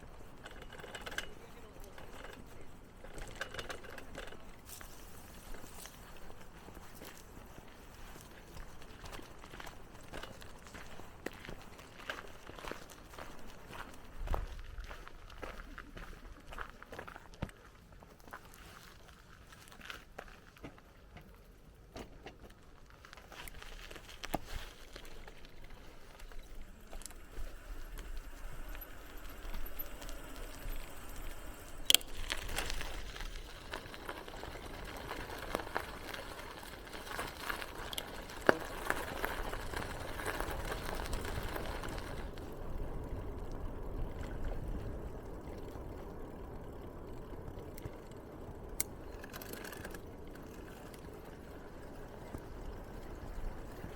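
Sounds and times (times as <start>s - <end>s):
bike parts rattling and clicking: 0.0s - 7.6s, 8.3s - 14.1s, 20.6s - 53.8s
bicycle tyres rolling on path: 0.0s - 53.9s.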